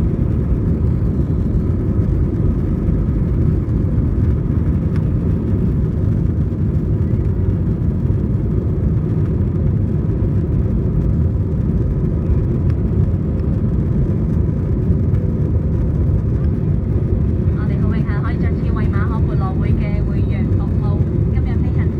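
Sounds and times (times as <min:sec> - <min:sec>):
airplane cabin engine rumble: 0:00.0 - 0:21.9.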